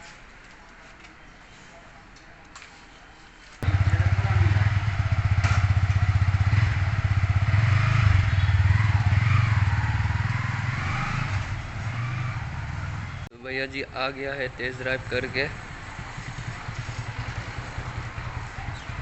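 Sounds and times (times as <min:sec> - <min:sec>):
motorcycle engine running: 0:03.6 - 0:13.3, 0:15.5 - 0:19.0.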